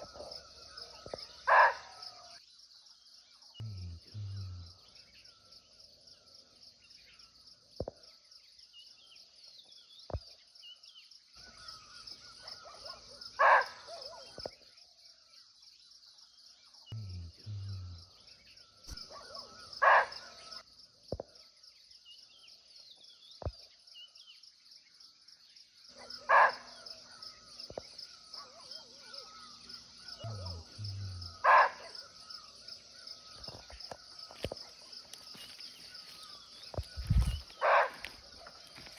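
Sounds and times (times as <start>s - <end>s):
insects chorus: 0.0s - 38.9s
deer barking: 19.0s - 20.4s, 30.2s - 32.1s.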